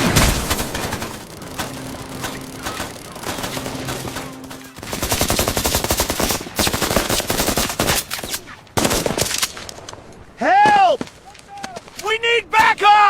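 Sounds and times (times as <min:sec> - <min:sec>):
steady low hum: 0:00.0 - 0:07.0
automatic gunfire: 0:00.0 - 0:09.4.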